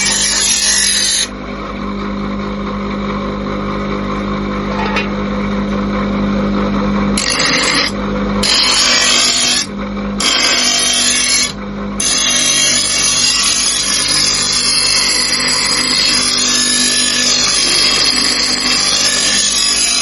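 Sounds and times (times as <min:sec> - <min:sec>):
grinder grinding metal: 0:00.0 - 0:01.4, 0:07.2 - 0:20.0
angle grinder motor whine: 0:00.0 - 0:20.0.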